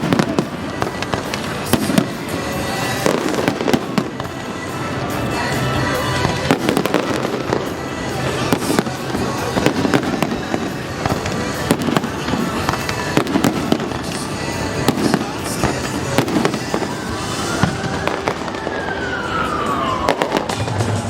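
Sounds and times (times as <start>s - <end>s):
firework bangs and crackling: 0.0s - 21.0s
rising and falling firework whistle: 5.6s - 21.0s.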